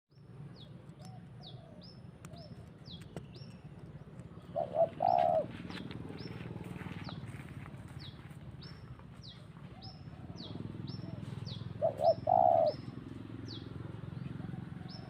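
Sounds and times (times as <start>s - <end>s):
bird cooing call: 1.0s - 2.9s, 4.4s - 7.4s, 9.6s - 15.0s.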